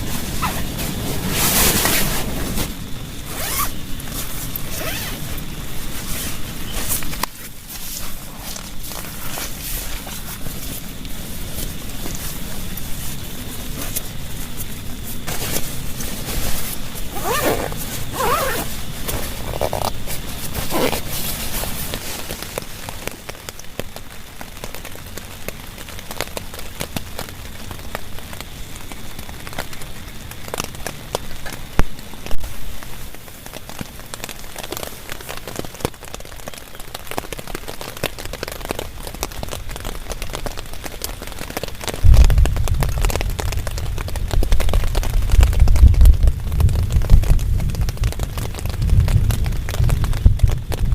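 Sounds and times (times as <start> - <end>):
heavy rain pattering: 0.0 - 50.9
deep rumble: 42.0 - 50.9.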